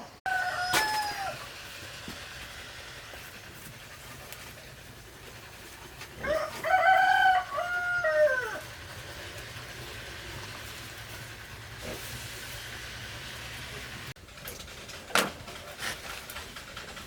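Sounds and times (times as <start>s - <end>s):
rooster crowing: 0.2s - 1.6s, 6.2s - 8.8s.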